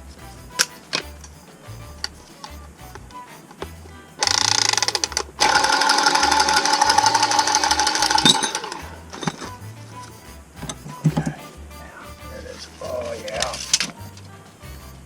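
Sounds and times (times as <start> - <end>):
power tool motor whining: 4.2 - 9.4.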